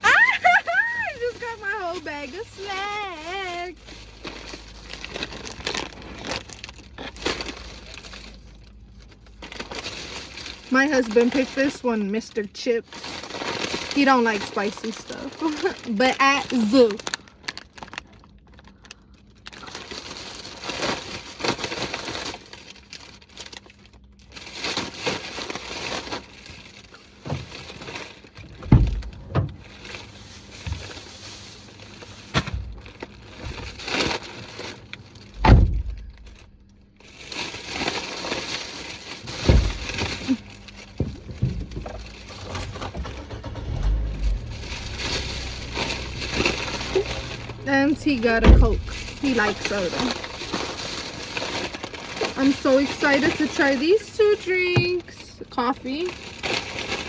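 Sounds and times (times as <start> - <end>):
crisp packet crinkling: 0.1 - 57.0
potato chips crunching: 3.6 - 11.8, 41.8 - 54.1.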